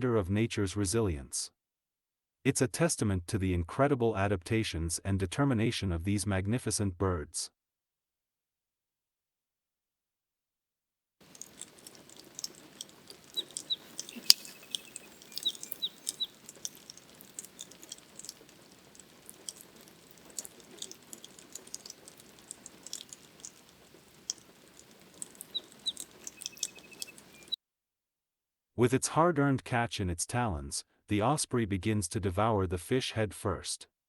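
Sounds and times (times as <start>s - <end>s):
drip ticks: 11.2s - 27.6s
rain pattering: 11.2s - 27.6s
high chirping bird calls: 11.3s - 27.6s.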